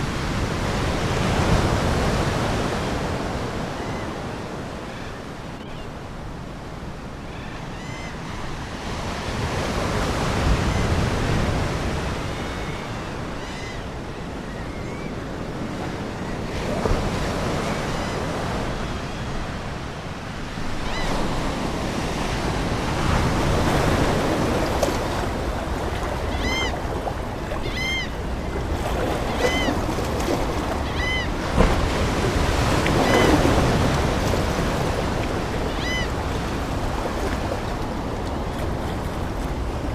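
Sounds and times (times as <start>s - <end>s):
ocean waves breaking: 0.0s - 39.9s
seagulls crying: 12.3s - 16.6s, 23.3s - 39.9s.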